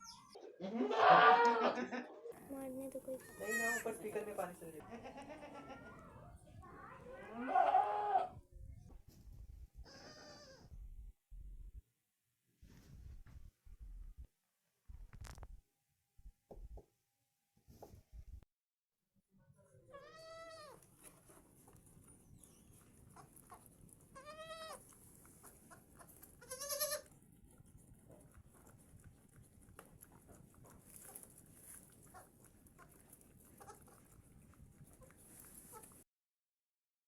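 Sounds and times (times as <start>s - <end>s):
goats bleating: 0.7s - 1.8s, 7.2s - 8.3s, 26.4s - 27.1s.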